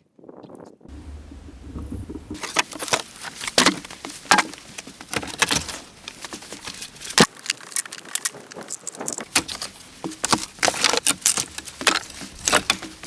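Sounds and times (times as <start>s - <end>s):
low hum: 0.9s - 2.8s.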